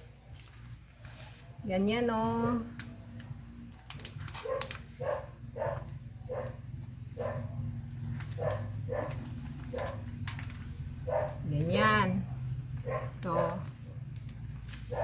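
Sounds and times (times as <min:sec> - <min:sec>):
paper crinkling: 0:00.0 - 0:01.7, 0:02.6 - 0:15.0
dog barking: 0:04.4 - 0:06.6, 0:07.2 - 0:07.6, 0:08.3 - 0:10.0, 0:11.0 - 0:11.5, 0:12.8 - 0:13.6.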